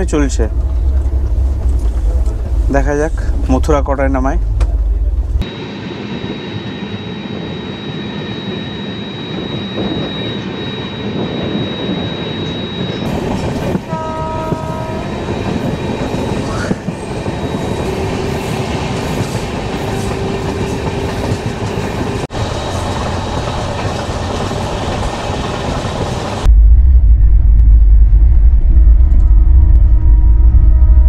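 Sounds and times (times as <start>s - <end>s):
train wheels on rails: 0.0s - 5.4s, 11.4s - 26.5s
heavy low train rumble: 0.0s - 31.0s.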